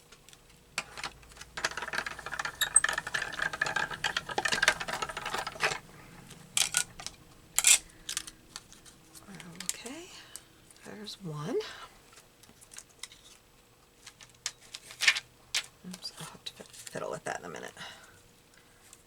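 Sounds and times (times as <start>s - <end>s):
die-cutting machine rattling: 0.8s - 7.8s.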